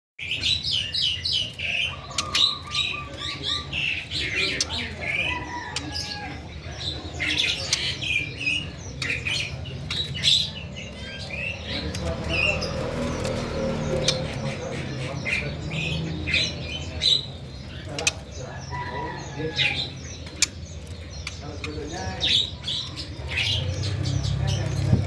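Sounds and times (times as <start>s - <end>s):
bird chirping and calling: 0.2s - 25.0s.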